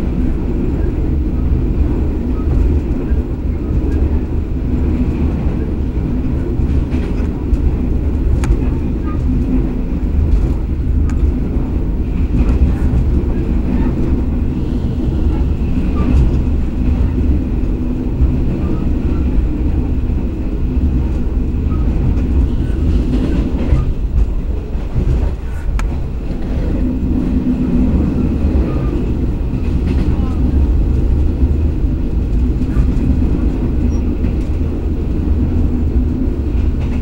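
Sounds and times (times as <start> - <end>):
rumble of train wheels on rails: 0.0 - 37.0.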